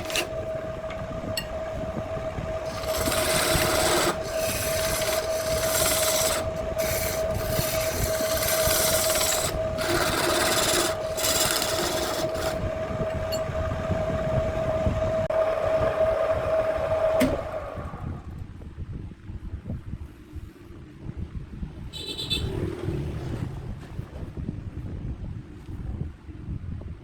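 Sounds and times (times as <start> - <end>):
tool rasping against spinning wood: 0.0 - 0.6, 2.5 - 13.4
wood lathe motor humming: 0.0 - 18.1.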